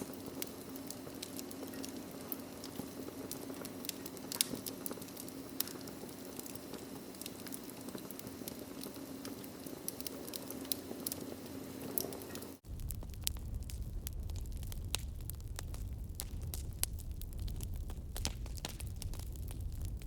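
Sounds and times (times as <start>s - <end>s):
wood fire crackling and popping: 0.0s - 20.0s
deep steady rumble: 12.6s - 20.0s.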